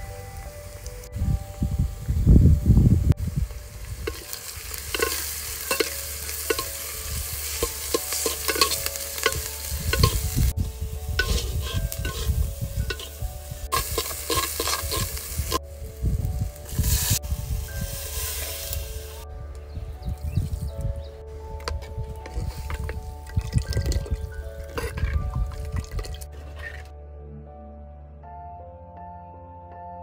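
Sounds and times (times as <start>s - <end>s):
food sizzling in oil: 3.3s - 15.7s, 16.3s - 19.2s
spoon clinking and scraping pot: 4.0s - 10.4s, 11.2s - 15.6s, 21.7s - 26.9s.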